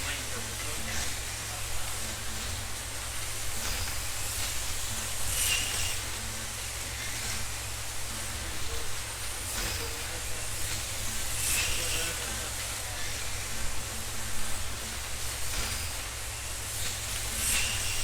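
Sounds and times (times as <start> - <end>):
slot cars whining electric motors: 0.0 - 18.0.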